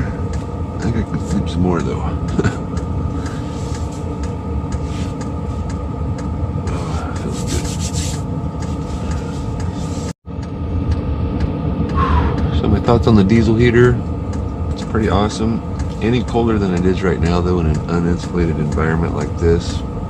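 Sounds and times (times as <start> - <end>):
blower hum: 0.0 - 20.0
heater combustion rumble: 0.0 - 20.0.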